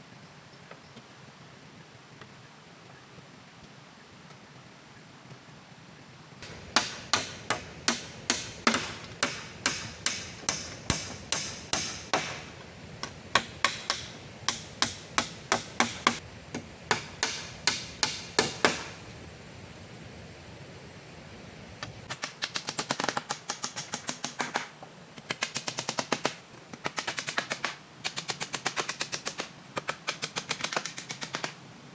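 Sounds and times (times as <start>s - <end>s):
tool knocking on wood: 6.4s - 19.0s.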